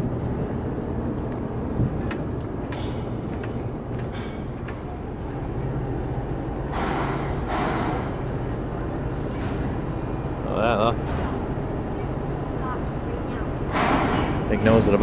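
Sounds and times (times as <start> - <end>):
light clicks and knocks: 0.0 - 9.6
vehicles idling and driving: 0.0 - 15.0.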